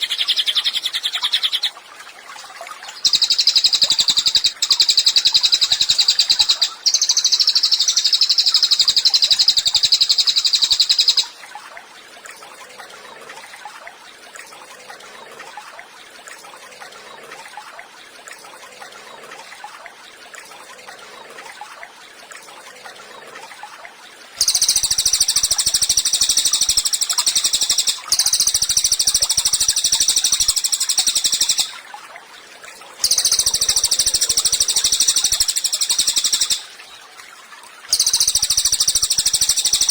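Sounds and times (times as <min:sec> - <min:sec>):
bird trilling: 0:00.0 - 0:01.7, 0:03.0 - 0:11.3, 0:24.4 - 0:31.8, 0:33.0 - 0:36.8, 0:37.9 - 0:39.9.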